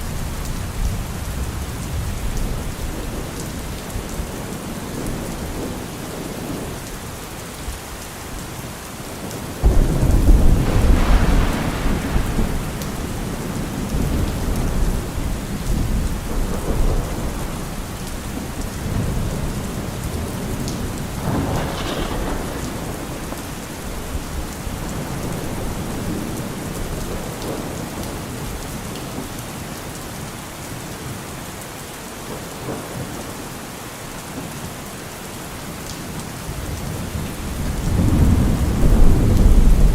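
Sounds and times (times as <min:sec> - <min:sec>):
heavy rain: 0:00.0 - 0:39.9
thunder rumbling: 0:09.0 - 0:29.2, 0:36.5 - 0:39.9.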